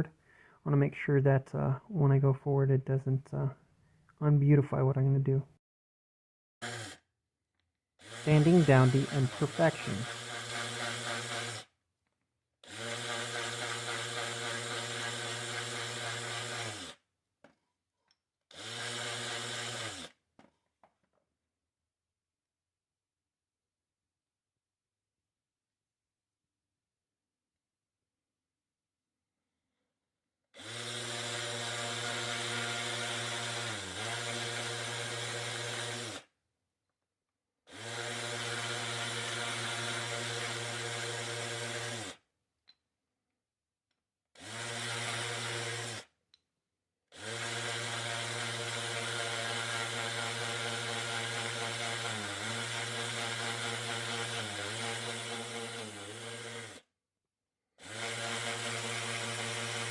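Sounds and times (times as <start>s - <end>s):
electric power tool sanding wood: 6.6s - 7.0s, 8.0s - 11.8s, 12.6s - 17.0s, 18.5s - 20.2s, 30.6s - 36.3s, 37.7s - 42.2s, 44.4s - 46.1s, 47.2s - 56.8s, 57.8s - 59.9s.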